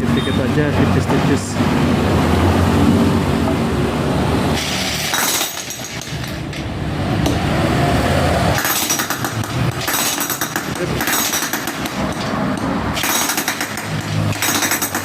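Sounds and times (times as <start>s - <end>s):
electric jackhammer hammering: 4.6s - 6.4s, 8.5s - 15.0s
metallic clinking: 4.6s - 7.4s, 8.5s - 15.0s.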